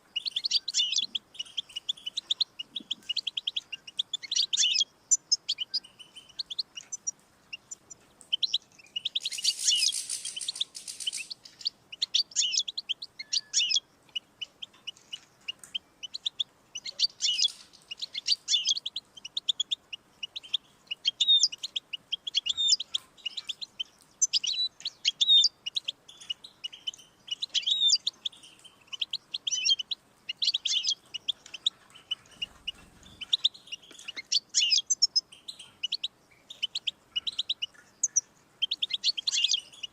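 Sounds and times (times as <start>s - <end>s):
finch singing: 0.0s - 39.9s.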